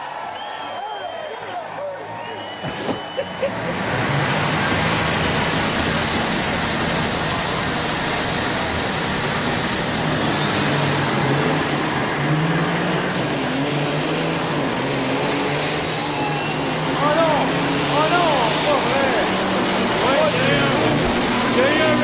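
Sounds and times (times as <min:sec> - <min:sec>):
high steady whistle: 0:02.2 - 0:03.5
diesel truck engines running hard: 0:02.5 - 0:22.0.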